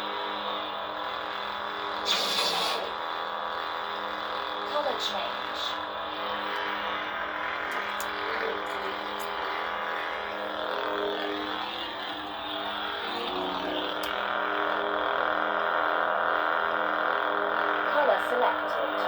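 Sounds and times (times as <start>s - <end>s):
lightsaber buzzing hum: 0.0s - 19.0s
faint clicks: 14.0s - 14.2s.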